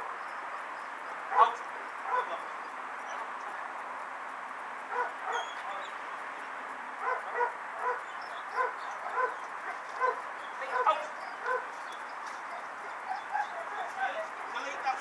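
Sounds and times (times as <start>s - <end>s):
dog barking: 1.3s - 2.4s, 4.9s - 5.8s, 7.0s - 11.8s, 12.4s - 14.2s.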